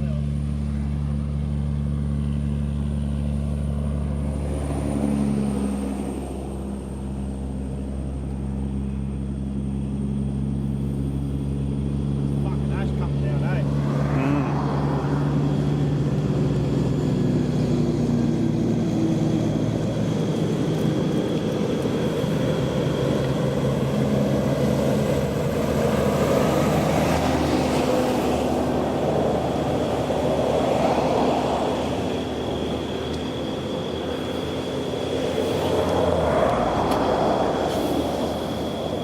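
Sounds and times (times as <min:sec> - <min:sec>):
broad rushing noise: 0:18.2 - 0:39.0.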